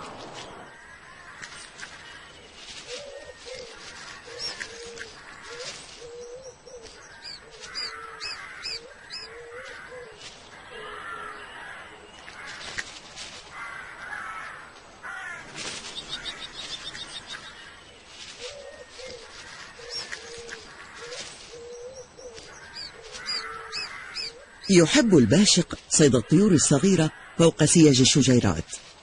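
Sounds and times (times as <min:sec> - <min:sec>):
birds calling: 0:00.0 - 0:29.0
outdoor background noise: 0:00.0 - 0:29.0
high bird chirps: 0:01.5 - 0:11.6, 0:15.8 - 0:25.0.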